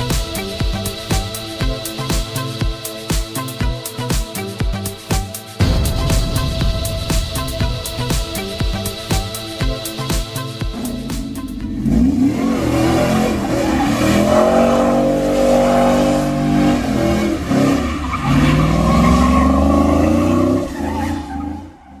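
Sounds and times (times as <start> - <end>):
car engine revving: 5.6 - 22.0.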